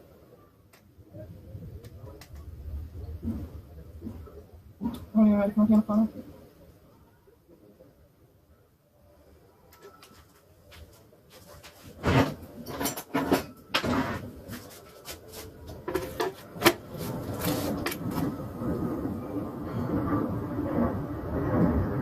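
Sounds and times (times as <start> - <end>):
steady low noise: 15.4 - 22.0.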